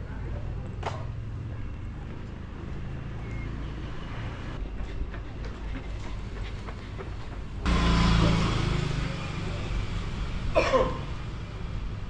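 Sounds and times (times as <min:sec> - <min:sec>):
vehicle engine running low: 0:05.7 - 0:12.0
vehicle engine starting up: 0:07.7 - 0:10.5.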